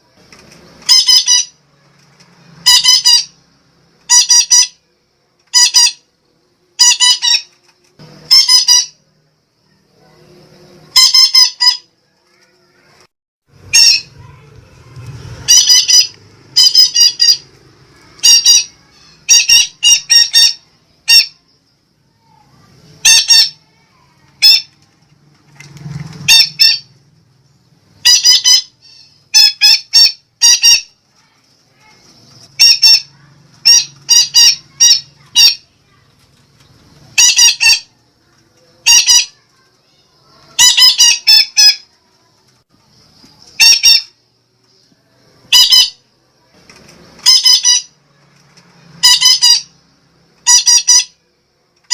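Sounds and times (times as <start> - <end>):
parakeet squawking: 0.8 - 1.6, 2.6 - 3.4, 4.0 - 4.8, 5.5 - 6.1, 6.8 - 7.5, 8.2 - 9.0, 10.9 - 11.9, 13.6 - 14.5, 15.2 - 21.4, 23.0 - 24.7, 26.2 - 26.9, 28.0 - 31.0, 32.5 - 35.7, 37.2 - 37.9, 38.8 - 39.5, 40.6 - 41.8, 43.6 - 44.2, 45.5 - 46.0, 47.2 - 48.0, 49.0 - 49.8, 50.4 - 51.2.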